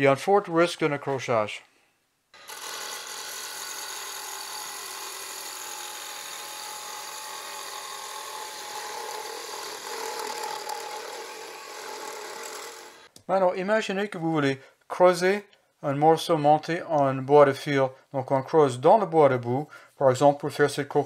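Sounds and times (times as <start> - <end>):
gouge cutting spinning wood: 2.4 - 13.1
lathe motor hum: 2.4 - 13.1.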